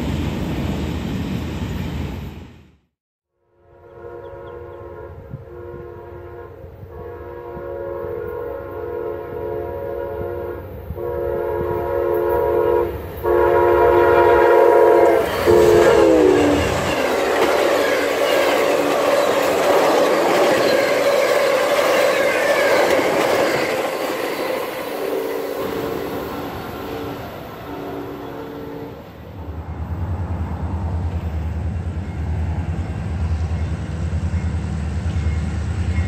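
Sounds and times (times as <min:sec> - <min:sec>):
locomotive horn blasts: 0:03.5 - 0:17.0, 0:25.0 - 0:29.6
train cars clickety-clack: 0:15.0 - 0:27.4.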